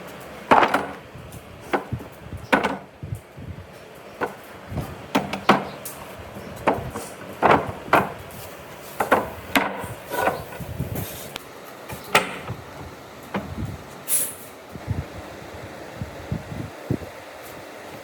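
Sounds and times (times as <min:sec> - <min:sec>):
wood knocking: 0:00.5 - 0:01.0, 0:01.7 - 0:02.9, 0:06.6 - 0:08.2, 0:09.0 - 0:10.6.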